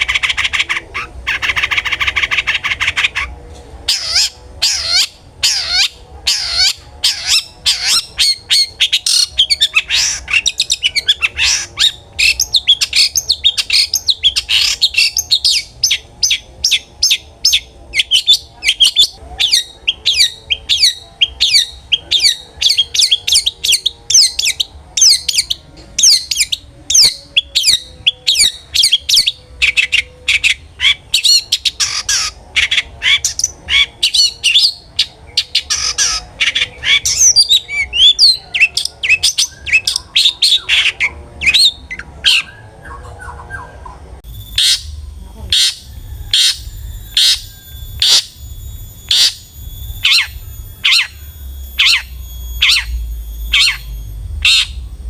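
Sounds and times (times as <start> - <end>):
bird sharp calls: 0.0 - 54.9
shrike singing harsh chattering notes: 44.2 - 55.0.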